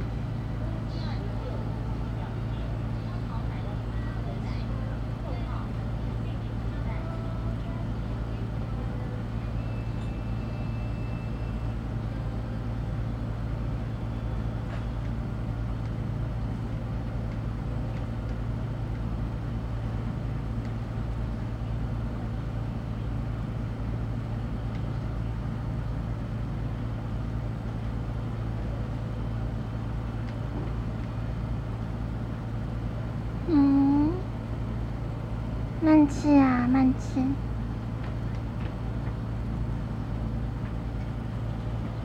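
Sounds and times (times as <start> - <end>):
low engine drone: 16.4 - 42.0.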